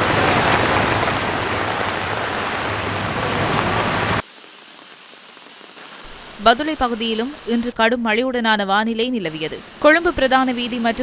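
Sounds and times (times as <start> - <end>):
heavy rain: 0.0 - 7.9, 9.2 - 11.0
running floodwater: 0.0 - 7.9, 9.2 - 11.0.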